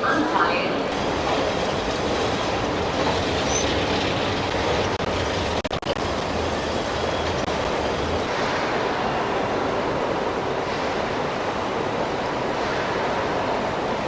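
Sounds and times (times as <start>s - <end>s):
vehicle running noise: 0.9s - 9.7s.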